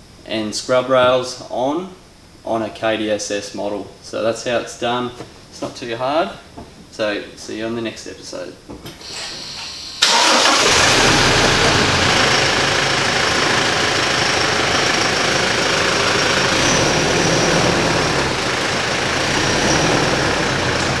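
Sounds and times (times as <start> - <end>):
car engine idling: 10.0 - 21.0.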